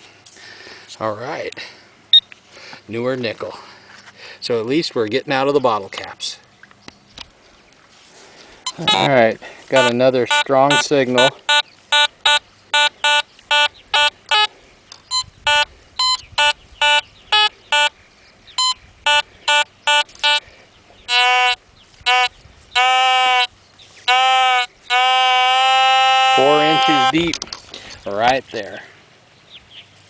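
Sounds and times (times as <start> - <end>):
metal detector beeping: 8.6 - 14.5, 15.1 - 18.0, 18.6 - 20.4, 21.1 - 27.3.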